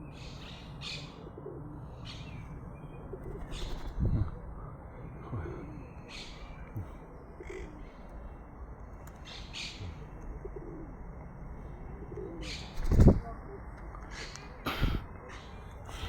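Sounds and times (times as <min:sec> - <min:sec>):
bird cooing calls: 0:00.0 - 0:08.4, 0:09.2 - 0:16.0.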